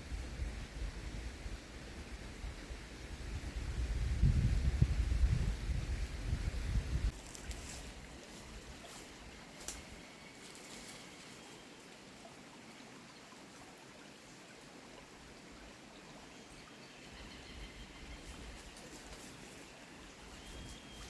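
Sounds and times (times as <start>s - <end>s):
creek flowing: 7.1s - 21.0s
faint high bird calls: 16.9s - 21.0s.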